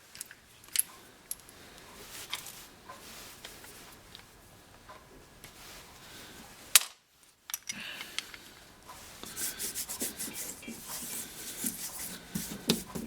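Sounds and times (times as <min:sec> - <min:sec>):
metal parts rubbing and scraping: 0:09.2 - 0:13.0.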